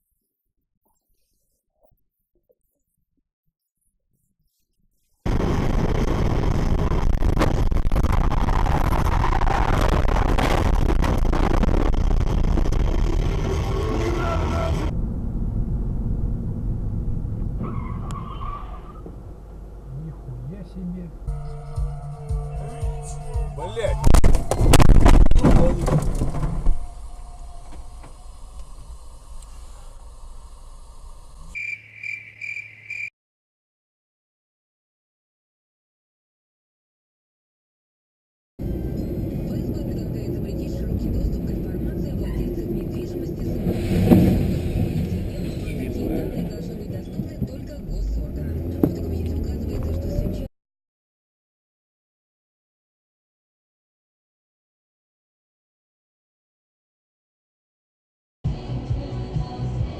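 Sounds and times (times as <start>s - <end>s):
car road and engine rumble: 5.3s - 31.6s, 38.6s - 50.5s
car crash impacts and crunching: 24.0s - 26.9s.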